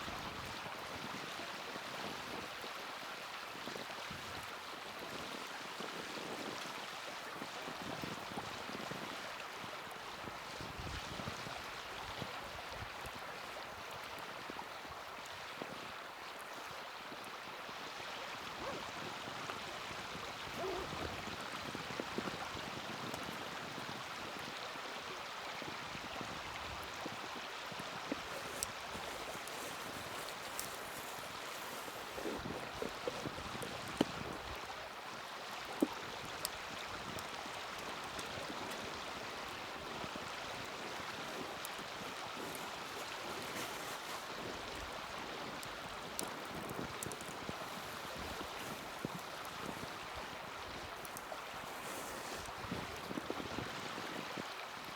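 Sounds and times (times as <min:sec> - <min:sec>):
fire hiss: 0:28.1 - 0:34.0
wood fire crackling and popping: 0:28.1 - 0:34.4, 0:45.6 - 0:50.1.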